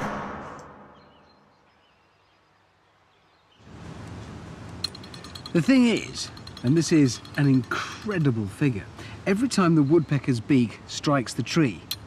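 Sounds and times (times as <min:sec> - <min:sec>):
faint bird chirps: 0:00.8 - 0:03.6.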